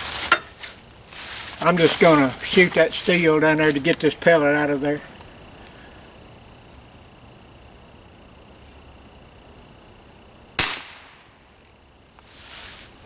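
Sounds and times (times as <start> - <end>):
air rifle shot: 10.6 - 11.3.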